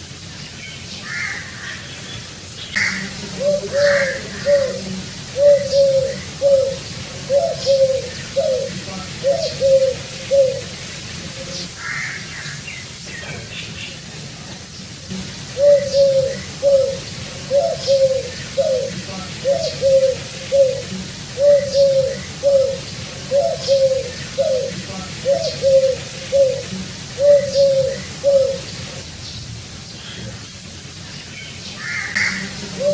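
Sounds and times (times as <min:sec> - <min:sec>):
bird chirp: 0:01.7 - 0:10.8, 0:15.6 - 0:30.3
pigeon cooing: 0:02.8 - 0:12.2, 0:15.1 - 0:29.0, 0:31.8 - 0:32.9.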